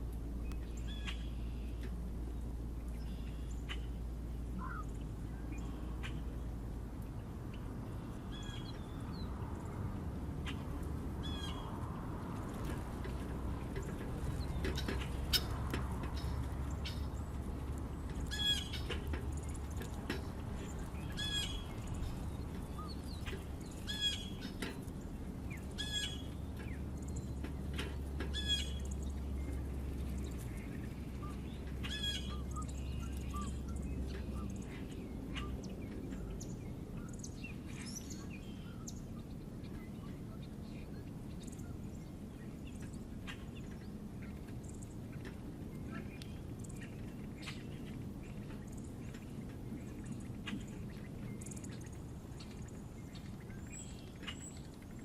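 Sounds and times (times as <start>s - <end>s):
steady low rumble: 0.0s - 55.0s
bird chirps: 20.6s - 24.7s, 28.3s - 41.8s.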